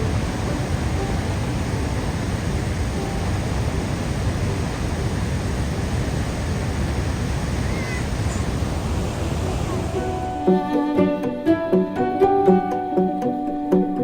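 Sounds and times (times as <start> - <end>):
waterfall roaring: 0.0 - 10.4.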